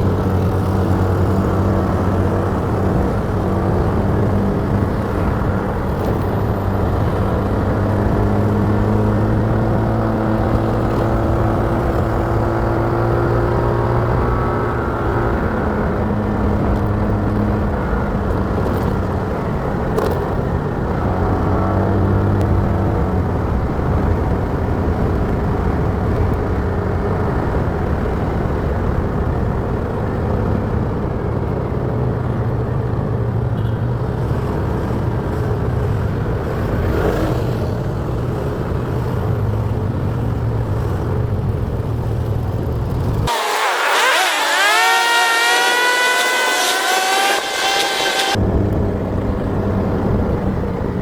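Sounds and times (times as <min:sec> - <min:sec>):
motorcycle engine running: 0:00.0 - 0:31.4
road and wind noise: 0:00.0 - 0:51.0
high rising whine: 0:43.3 - 0:49.7.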